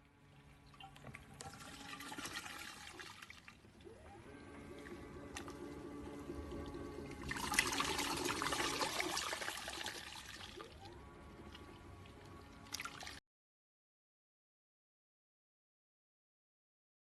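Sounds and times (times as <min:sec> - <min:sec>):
washing machine motor hum: 0:00.0 - 0:13.2
water pouring and splashing: 0:00.6 - 0:04.0, 0:04.8 - 0:13.2.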